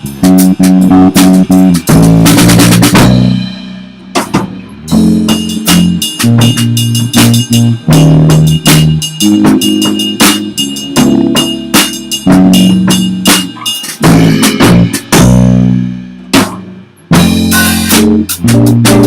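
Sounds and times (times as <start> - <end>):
held bass note: 0.0 - 4.0, 4.7 - 10.0
band playing instrumental: 0.0 - 19.0
drum hits: 0.0 - 19.0.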